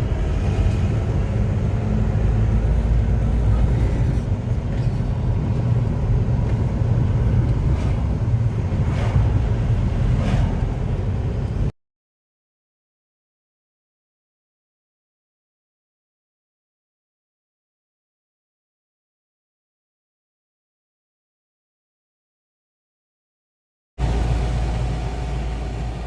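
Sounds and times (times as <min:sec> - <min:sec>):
road noise: 0:00.0 - 0:11.7, 0:24.0 - 0:26.0
vehicle engine rumble: 0:00.0 - 0:11.7, 0:24.0 - 0:26.0.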